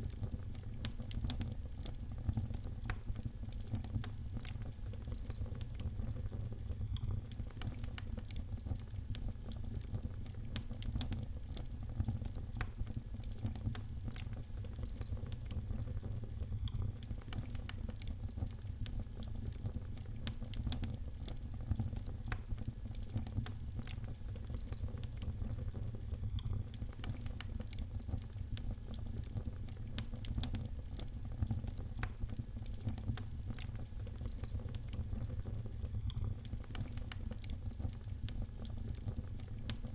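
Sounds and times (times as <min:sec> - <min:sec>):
wood fire crackling in fireplace: 0:00.0 - 0:39.9.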